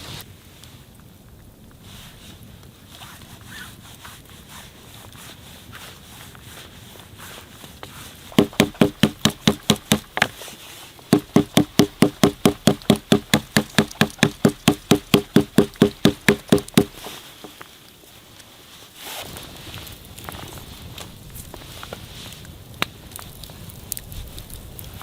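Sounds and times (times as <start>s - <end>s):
wood being struck rapidly: 8.3s - 10.4s, 11.1s - 17.1s.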